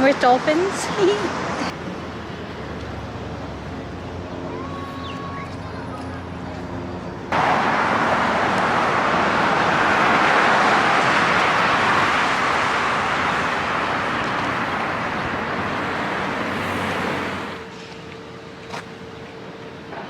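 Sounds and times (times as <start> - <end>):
loud rushing noise: 7.3 - 17.6.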